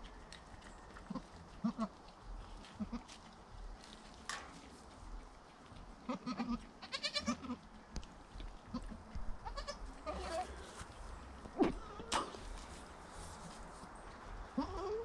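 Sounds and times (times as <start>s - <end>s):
goats bleating: 1.1s - 1.9s, 2.6s - 3.2s, 6.0s - 7.6s, 8.7s - 10.7s, 11.5s - 12.4s, 14.5s - 15.0s.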